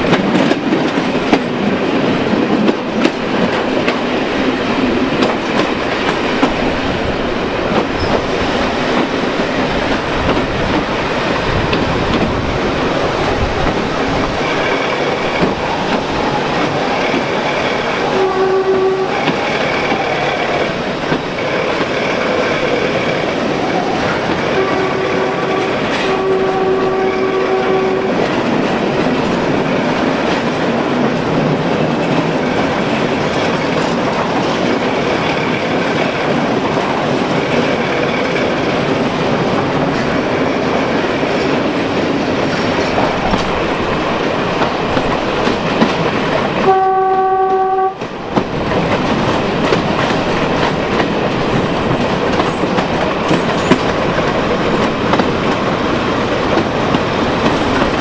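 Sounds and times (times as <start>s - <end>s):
wind noise: 0.0s - 46.8s, 47.9s - 58.0s
train wheels rumbling on rail: 0.0s - 58.0s
train horn blasts: 18.0s - 19.4s, 24.5s - 28.2s, 46.6s - 48.0s.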